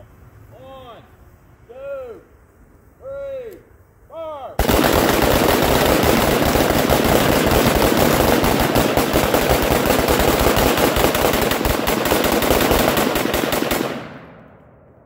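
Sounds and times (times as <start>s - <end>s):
guns firing rapidly: 4.6s - 14.6s.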